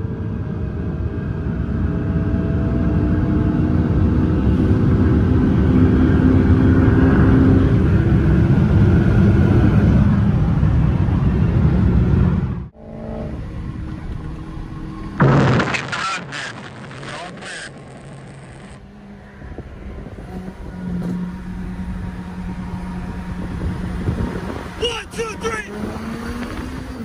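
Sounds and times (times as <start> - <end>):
car engine accelerating hard: 0.0 - 27.0
road and wind noise: 0.0 - 27.0
sudden loud burst: 15.2 - 18.7.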